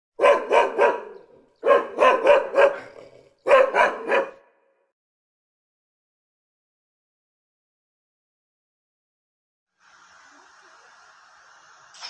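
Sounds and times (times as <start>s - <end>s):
dog barking: 0.2s - 4.7s.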